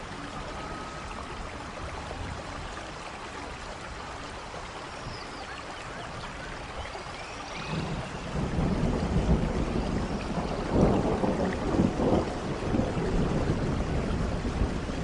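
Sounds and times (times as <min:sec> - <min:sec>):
rain falling: 0:00.0 - 0:15.0
low rumble of thunder: 0:07.4 - 0:15.0.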